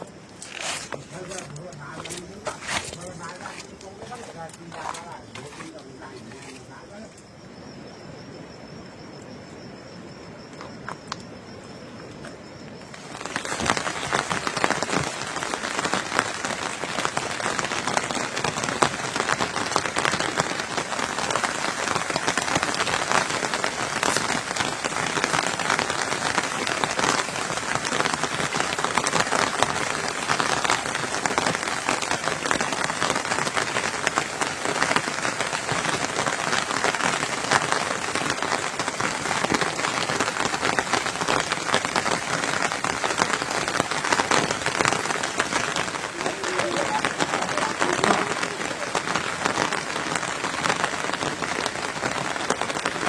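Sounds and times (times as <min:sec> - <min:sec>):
heavy rain falling: 0:00.0 - 0:07.3, 0:10.4 - 0:53.0
thin high-pitched whine: 0:00.0 - 0:15.1.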